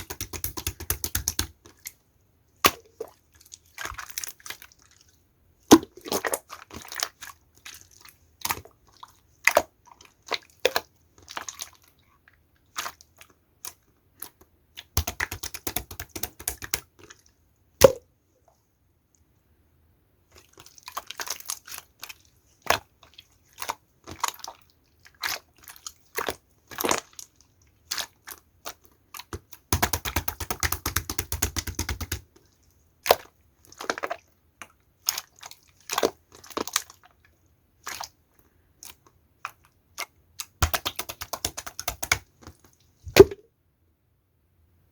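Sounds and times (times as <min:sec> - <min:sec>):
sharp clicks and pops: 0:40.6 - 0:42.2.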